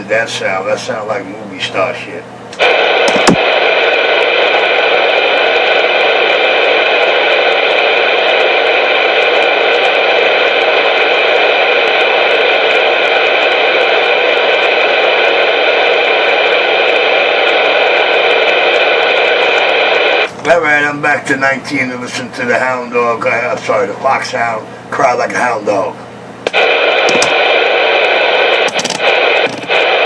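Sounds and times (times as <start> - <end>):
voice over radio: 0.0 - 26.0
radio static hiss: 0.0 - 30.0.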